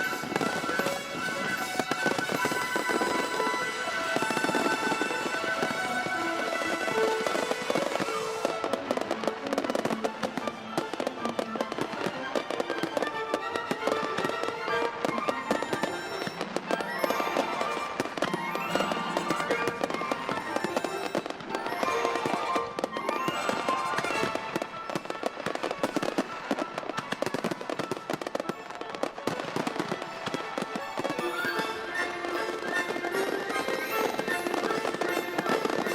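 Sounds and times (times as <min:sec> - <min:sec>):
background music: 0:00.0 - 0:07.6, 0:14.3 - 0:25.1, 0:31.1 - 0:35.9
fireworks crackling and popping: 0:00.0 - 0:35.9.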